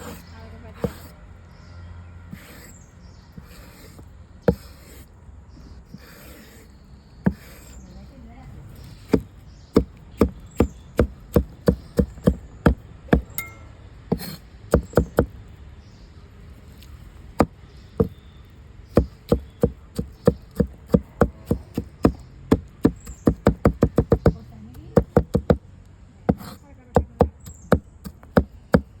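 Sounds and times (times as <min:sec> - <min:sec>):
blade chopping coconut husk: 0:00.0 - 0:01.2, 0:03.4 - 0:05.1, 0:05.9 - 0:07.9, 0:08.8 - 0:15.3, 0:16.8 - 0:18.2, 0:18.9 - 0:25.6, 0:26.3 - 0:29.0.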